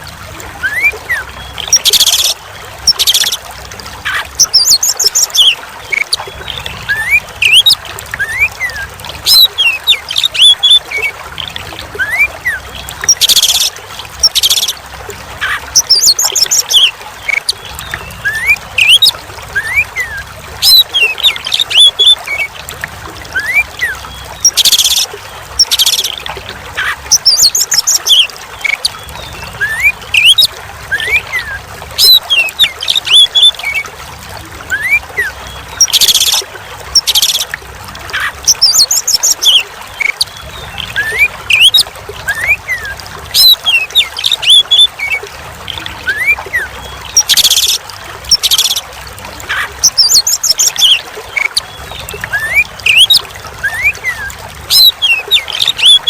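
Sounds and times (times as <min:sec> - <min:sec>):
trickling water: 0:00.0 - 0:56.0
bird singing whistled phrases: 0:00.6 - 0:02.3.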